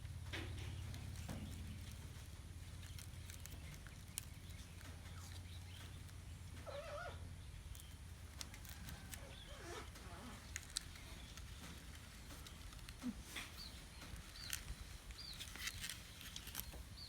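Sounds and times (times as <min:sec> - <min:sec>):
steady low hum: 0:00.0 - 0:17.0
puppy whimpering: 0:06.6 - 0:07.2.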